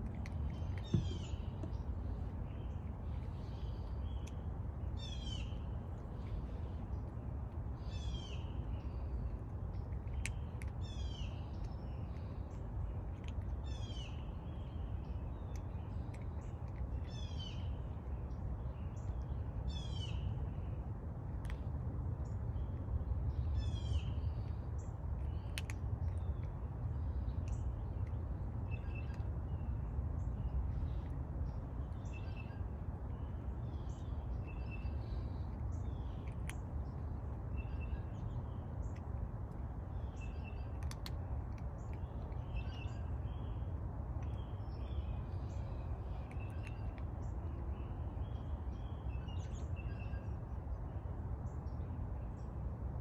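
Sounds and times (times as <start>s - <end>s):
steady low rumble: 0.0s - 53.0s.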